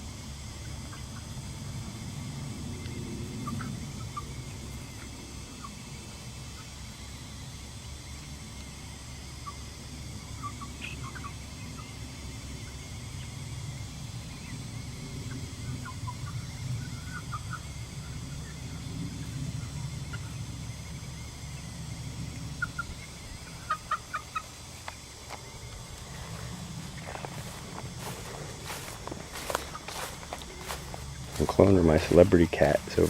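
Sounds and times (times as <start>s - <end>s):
chickens clucking: 22.6s - 33.0s.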